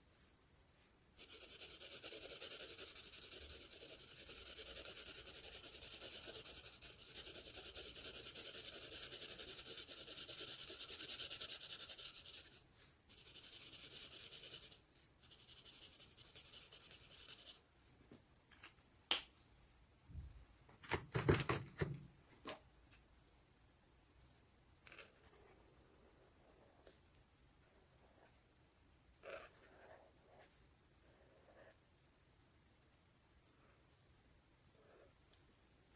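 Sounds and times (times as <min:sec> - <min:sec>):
marker rubbing on paper: 0:01.2 - 0:17.6.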